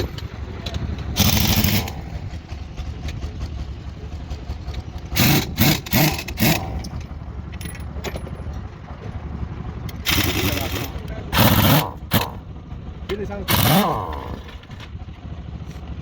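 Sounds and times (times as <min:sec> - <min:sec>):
engine low rumble: 0:00.0 - 0:16.0
short loud bursts: 0:13.5 - 0:14.4.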